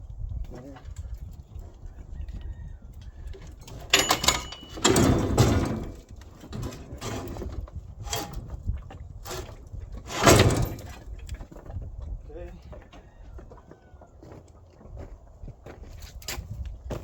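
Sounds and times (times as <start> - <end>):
metal parts clanking: 3.6 - 8.5, 9.3 - 11.1
metal scraping rattle: 3.6 - 11.3.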